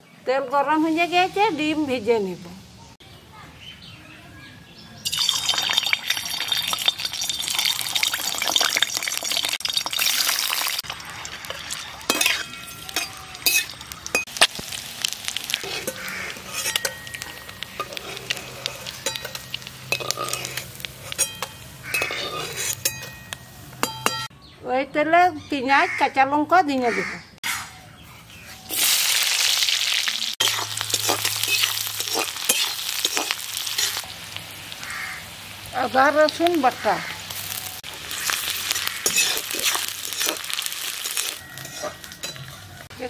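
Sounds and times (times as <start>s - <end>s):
eggs sizzling in hot oil: 5.0s - 24.3s, 28.6s - 43.0s
metal spatula scraping a pan: 11.4s - 14.3s, 15.4s - 24.3s, 30.4s - 34.1s, 37.4s - 42.9s.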